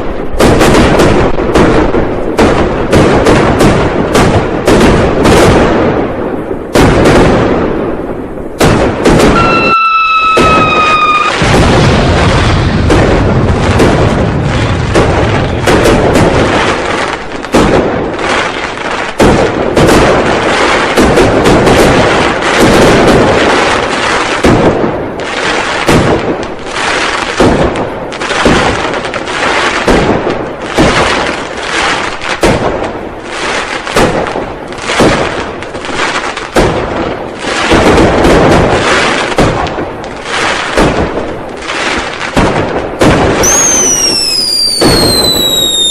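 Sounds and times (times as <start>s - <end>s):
fireworks bangs and booms: 0.0s - 45.9s
falling whistle: 9.4s - 11.4s, 43.4s - 45.9s.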